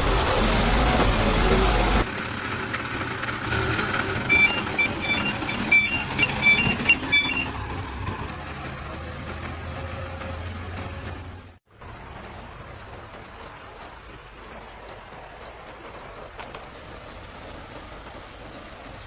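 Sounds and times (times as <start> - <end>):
high electronic beeps: 4.2 - 7.6.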